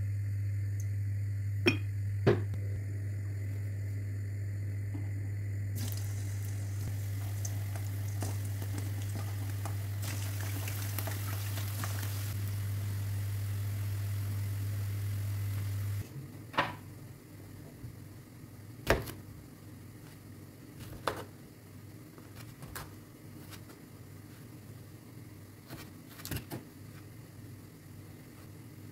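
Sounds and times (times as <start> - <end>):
low electrical hum: 0.0 - 28.9
food sizzling: 5.8 - 16.0.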